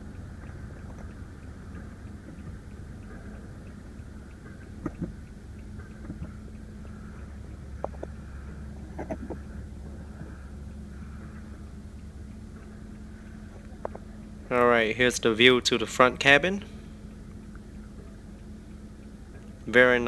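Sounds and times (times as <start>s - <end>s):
light clicks and taps: 0.0s - 14.6s, 16.6s - 20.0s
car cabin hum: 0.0s - 20.0s.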